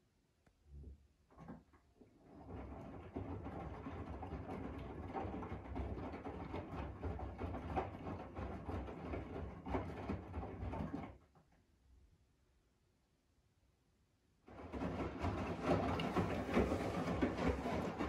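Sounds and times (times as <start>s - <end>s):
wet laundry sloshing and knocking: 1.3s - 11.3s, 14.5s - 18.0s
washing machine drum humming: 14.5s - 18.0s.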